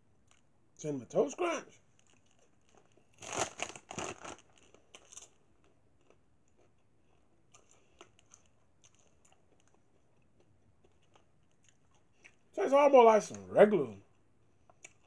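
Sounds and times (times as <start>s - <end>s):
popcorn crunching: 1.9s - 6.8s.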